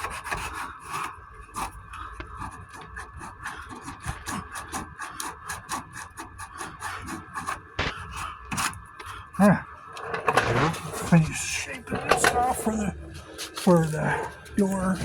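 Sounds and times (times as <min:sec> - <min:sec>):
sandpaper rasping on body filler: 0:02.4 - 0:08.7.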